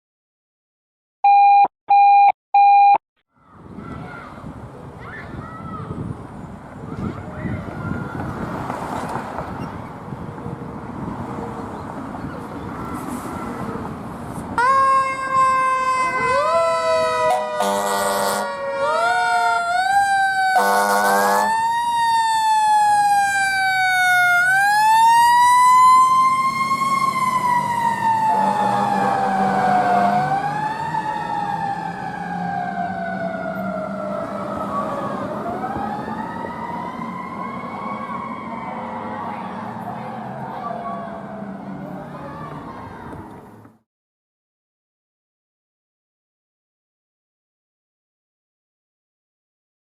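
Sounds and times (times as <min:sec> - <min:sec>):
traffic noise: 0:03.3 - 0:43.8
fire engine siren: 0:14.6 - 0:42.4
horn blasts: 0:17.2 - 0:18.6.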